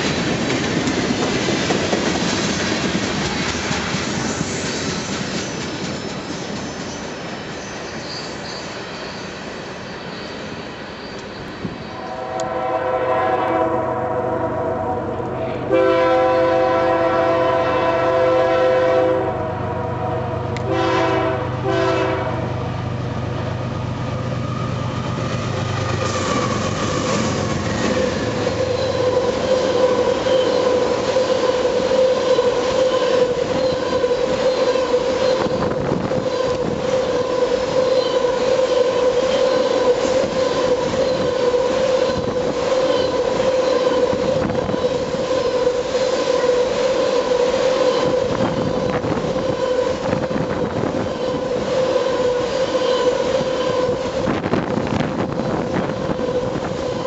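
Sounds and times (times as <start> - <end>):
locomotive air horn: 12.0 - 22.6, 26.0 - 54.5.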